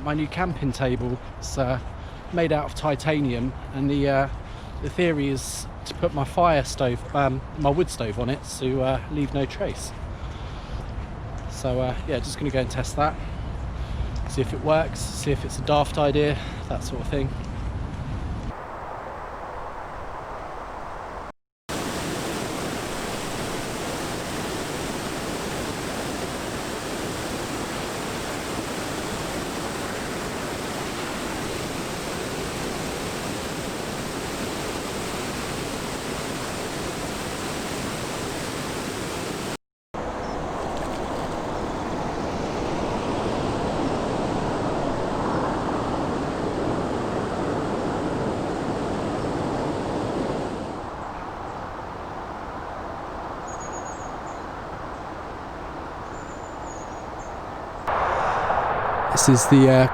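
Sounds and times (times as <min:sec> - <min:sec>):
road traffic rushing: 0:57.9 - 0:59.9.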